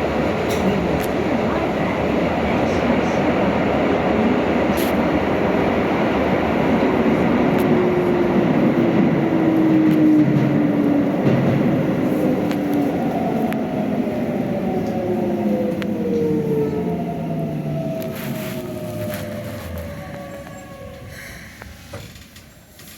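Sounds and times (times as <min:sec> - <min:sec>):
electric train running on rails: 0:00.0 - 0:22.9.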